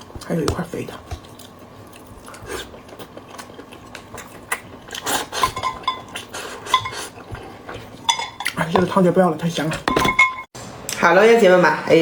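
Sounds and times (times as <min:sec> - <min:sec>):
chewing: 0:00.9 - 0:08.6.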